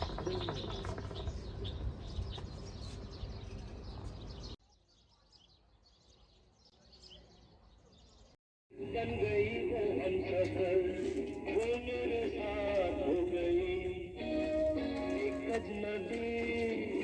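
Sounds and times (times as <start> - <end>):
small birds chirping: 0.0 - 8.4.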